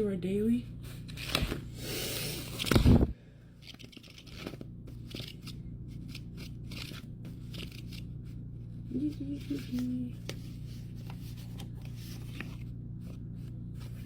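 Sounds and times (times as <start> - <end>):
paper rustling and crinkling: 0.9 - 1.7, 3.6 - 8.1, 9.1 - 14.0
envelopes and bills rustling: 0.9 - 3.0, 3.6 - 8.1, 9.1 - 14.0.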